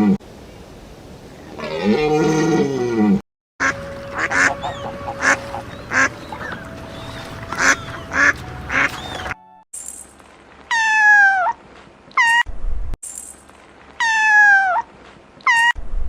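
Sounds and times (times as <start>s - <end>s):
ducks quacking: 3.6s - 9.4s.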